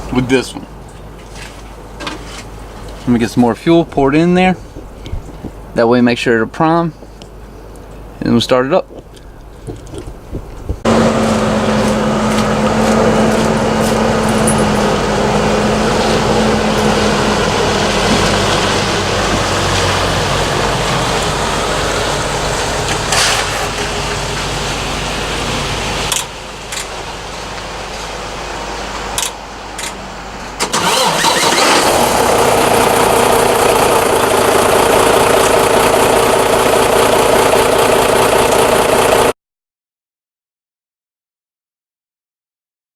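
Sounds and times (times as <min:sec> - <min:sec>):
diesel engine running: 0:09.4 - 0:39.3
starter motor whine: 0:30.6 - 0:39.3.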